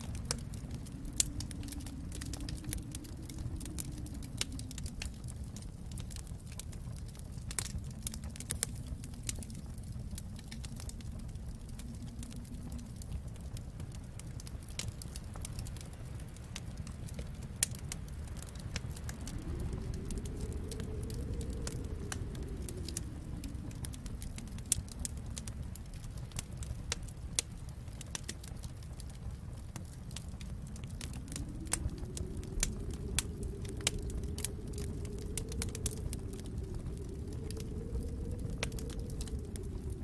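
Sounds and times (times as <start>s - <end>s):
soft low moaning tone: 0.0s - 14.4s, 16.8s - 27.3s, 28.8s - 40.0s
wood fire crackling and popping: 0.0s - 40.0s.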